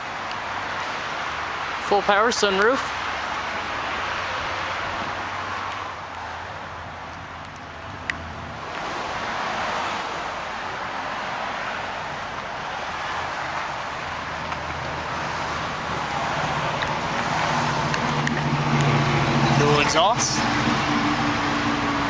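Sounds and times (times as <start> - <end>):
steady rushing noise: 0.1 - 22.0
car engine idling: 12.0 - 22.0.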